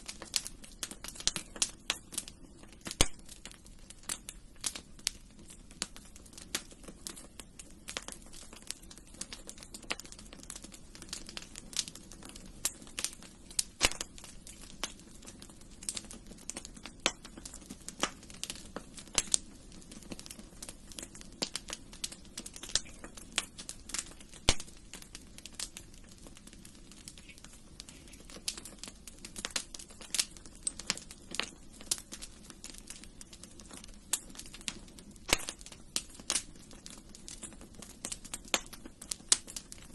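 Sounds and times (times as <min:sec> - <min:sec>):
low rumble of flames: 0:00.0 - 0:39.9
wood fire crackling: 0:00.0 - 0:39.9.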